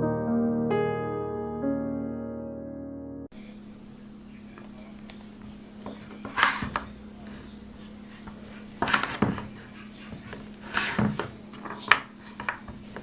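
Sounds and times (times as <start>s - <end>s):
faint steady hum: 3.3s - 13.0s
rubbing and scraping of objects: 5.4s - 13.0s.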